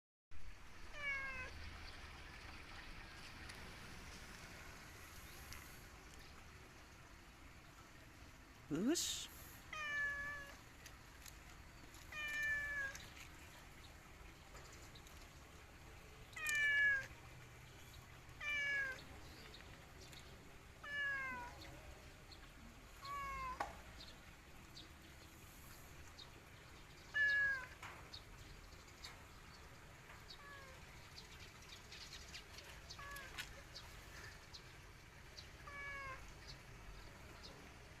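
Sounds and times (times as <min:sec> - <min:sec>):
cat meowing: 0:00.9 - 0:01.6, 0:09.7 - 0:10.6, 0:12.1 - 0:13.0, 0:16.4 - 0:17.1, 0:18.4 - 0:19.0, 0:20.8 - 0:21.7, 0:23.0 - 0:23.6, 0:27.1 - 0:27.8, 0:35.6 - 0:36.2.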